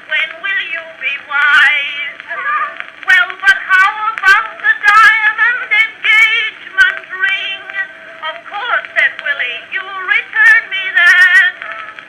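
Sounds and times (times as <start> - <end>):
woman singing on old recording: 0.0 - 12.0.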